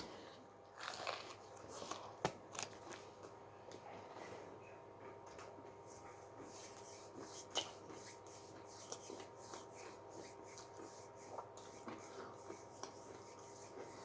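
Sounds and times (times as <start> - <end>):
person chewing crunchy food: 0.7 - 3.1.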